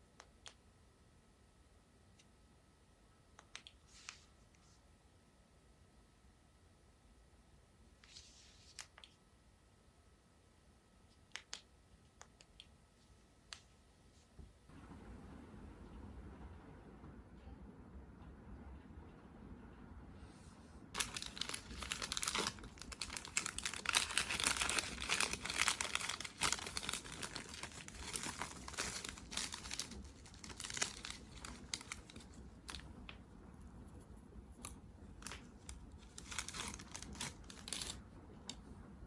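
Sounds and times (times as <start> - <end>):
packaging crinkling and tearing: 21.0 - 33.2, 34.5 - 38.0.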